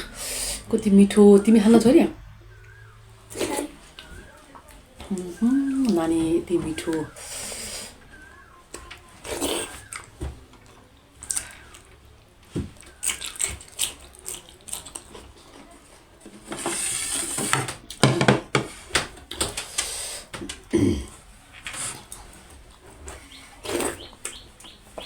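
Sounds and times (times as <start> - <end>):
chewing with wet mouth clicks: 8.0 - 16.0.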